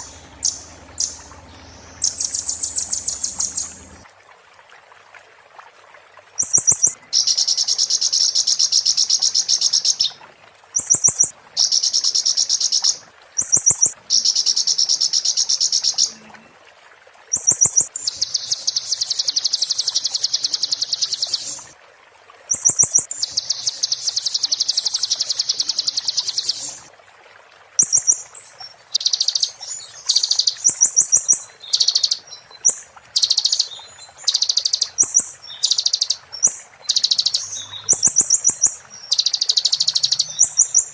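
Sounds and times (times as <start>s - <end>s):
songbird high-pitched trill: 0.0s - 4.0s, 31.7s - 36.2s, 36.9s - 40.9s.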